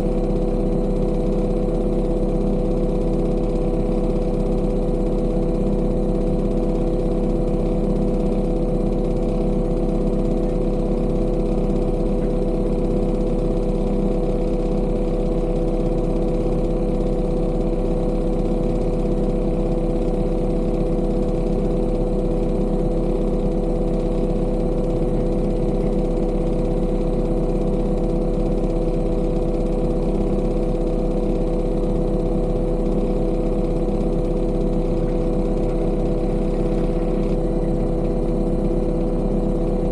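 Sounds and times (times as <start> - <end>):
heavy machinery engine droning: 33.6 - 39.9.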